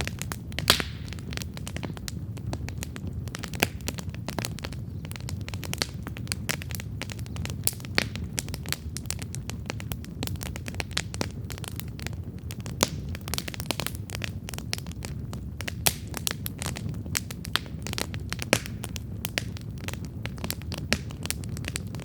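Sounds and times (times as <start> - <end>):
campfire crackling: 0.0 - 22.0
low rumble of flames: 0.0 - 22.0
sharp fire pops: 0.0 - 22.0.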